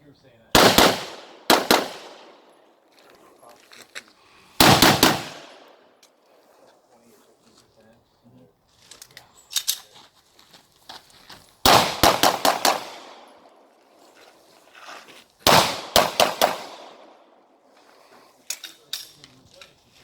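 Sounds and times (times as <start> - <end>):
pistol shots: 0.5 - 2.6, 4.6 - 5.8, 11.6 - 13.5, 15.4 - 17.3.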